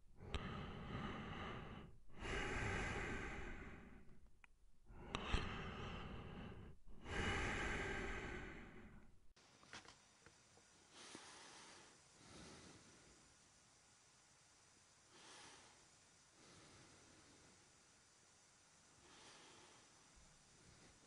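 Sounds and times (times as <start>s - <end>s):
person breathing through mouth: 0.0s - 9.3s.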